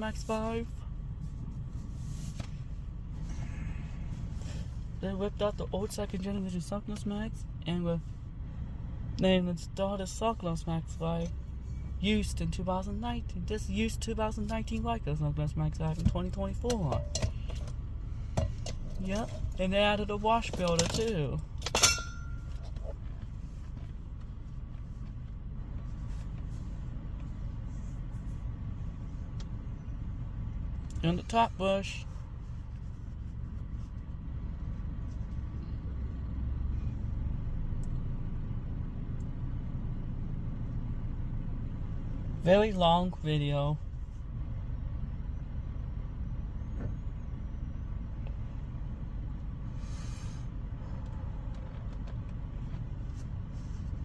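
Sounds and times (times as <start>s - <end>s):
car wash low rumble: 0.0s - 46.2s, 47.1s - 54.0s.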